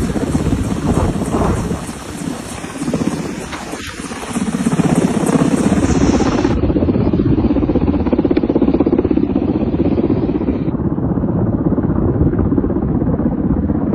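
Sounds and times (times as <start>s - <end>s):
engine running loudly: 0.0s - 10.8s.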